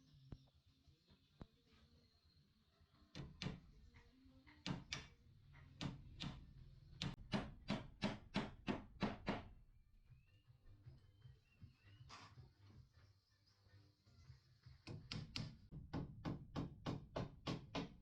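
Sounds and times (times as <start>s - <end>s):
hammer striking wood: 5.8s - 6.4s, 7.0s - 9.6s, 14.9s - 18.0s.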